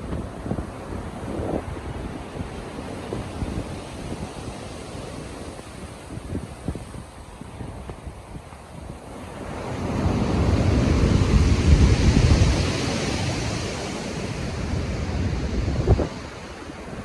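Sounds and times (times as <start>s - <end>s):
heavy wave breaking: 9.1s - 17.0s.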